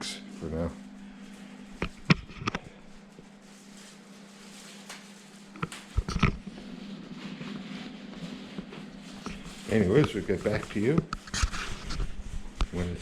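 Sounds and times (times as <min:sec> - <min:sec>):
fridge compressor humming: 0:00.0 - 0:13.0.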